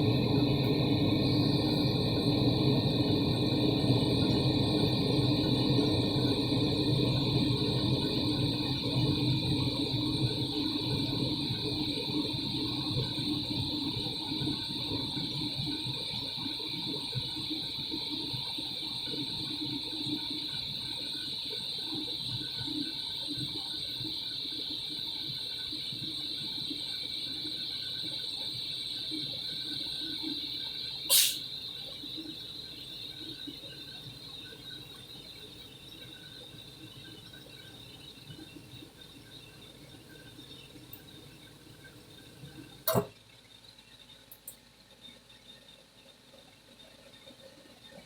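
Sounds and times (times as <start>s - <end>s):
furnace low rumble: 0.0s - 16.1s
gas furnace high whine: 0.0s - 44.6s
sharp click: 31.1s - 31.4s.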